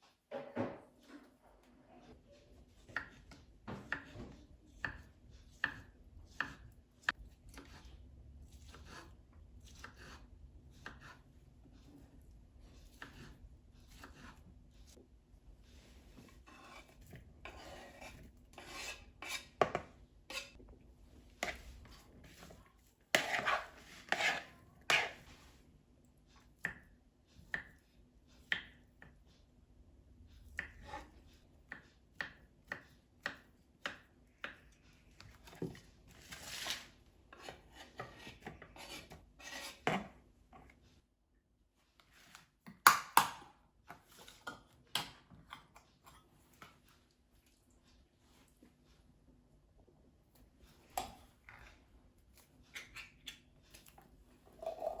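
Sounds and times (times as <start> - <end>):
knife cutting on a board: 8.5 - 11.2, 12.8 - 14.4, 16.4 - 20.6, 21.4 - 25.2, 35.4 - 40.2
knife scraping swishes: 23.1 - 25.5.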